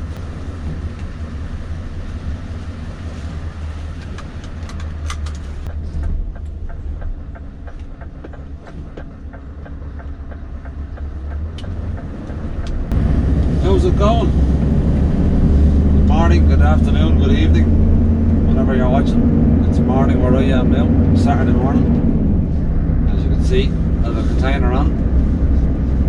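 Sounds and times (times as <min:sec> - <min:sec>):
low engine drone: 0:00.0 - 0:26.0
light uneven clicks and rattles: 0:03.9 - 0:12.9.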